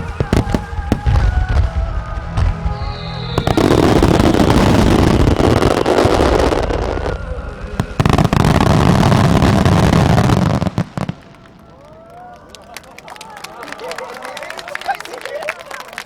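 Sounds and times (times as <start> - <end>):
music: 0.0 - 11.1
sharp firework reports: 0.0 - 11.8
fireworks bursts and crackle: 0.0 - 16.0.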